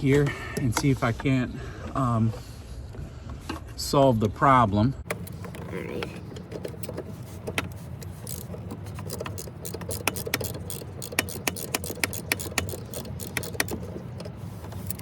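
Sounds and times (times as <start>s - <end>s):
hand tools clicking on metal: 5.1s - 15.0s.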